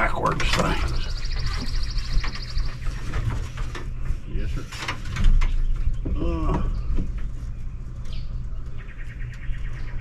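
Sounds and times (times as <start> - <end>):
bird trilling chirps: 0.9 - 3.1, 8.1 - 10.0.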